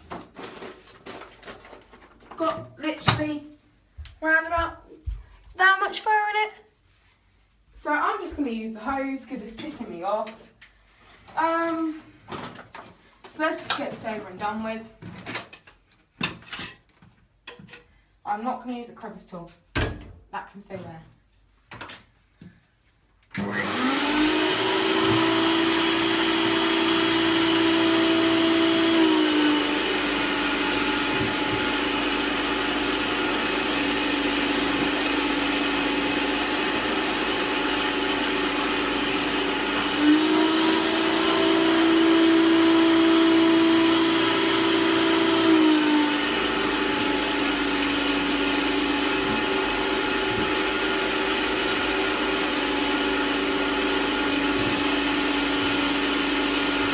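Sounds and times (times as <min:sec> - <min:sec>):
vacuum cleaner running: 0:23.3 - 0:56.9.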